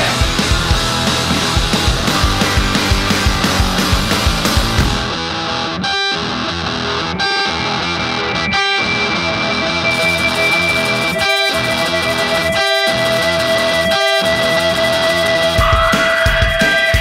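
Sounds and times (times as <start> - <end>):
distorted electric guitar chords: 0.0 - 17.0
high steady tone: 7.4 - 17.0.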